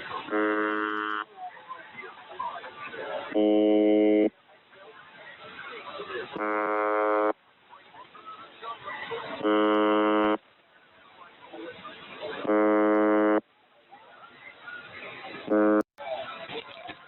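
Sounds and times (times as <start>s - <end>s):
harsh radio buzz: 0.0s - 1.2s, 3.3s - 4.3s, 6.4s - 7.4s, 9.4s - 10.4s, 12.4s - 13.4s, 15.4s - 15.9s
radio static crackling: 0.0s - 1.3s, 6.2s - 7.4s, 9.1s - 10.4s, 12.2s - 13.4s, 15.2s - 15.9s.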